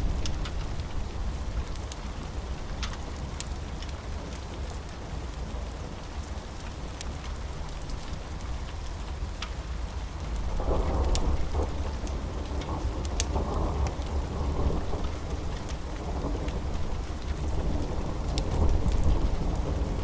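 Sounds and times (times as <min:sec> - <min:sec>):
steady rain: 0:00.0 - 0:20.0
low thunder rumble: 0:10.5 - 0:20.0.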